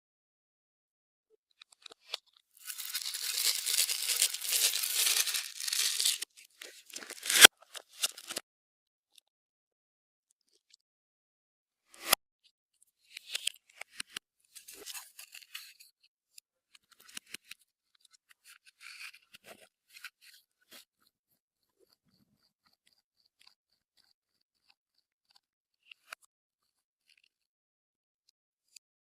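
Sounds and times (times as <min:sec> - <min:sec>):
slime crackling and clicking: 0:02.6 - 0:08.4.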